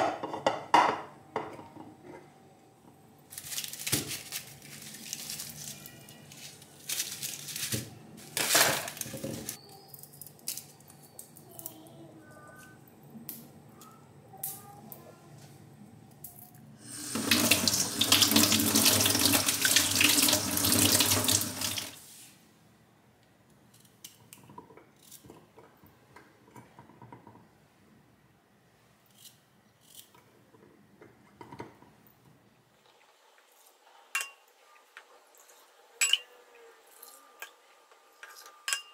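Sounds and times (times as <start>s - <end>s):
rustling: 3.3s - 9.6s
clatter of containers and utensils: 3.3s - 11.2s, 30.1s - 32.0s, 34.1s - 34.5s, 35.4s - 36.3s, 38.2s - 38.9s.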